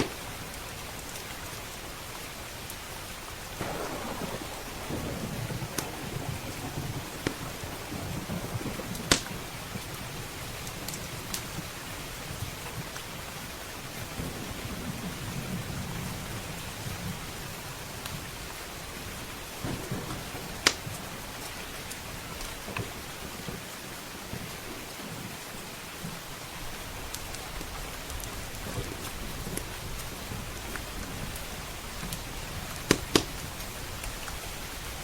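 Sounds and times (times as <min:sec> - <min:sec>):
wood fire popping: 0:00.0 - 0:01.3, 0:03.6 - 0:11.7, 0:19.8 - 0:22.9, 0:32.0 - 0:34.4
heavy rain: 0:00.0 - 0:35.0
rolling thunder: 0:03.5 - 0:11.8, 0:14.0 - 0:23.1.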